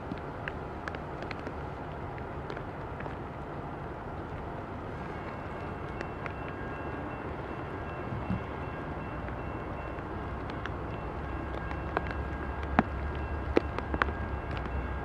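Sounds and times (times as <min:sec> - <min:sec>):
light ticks: 0:00.0 - 0:03.6, 0:09.2 - 0:15.0
diesel freight train rumbling: 0:02.8 - 0:15.0
faint high steady tones: 0:04.8 - 0:15.0.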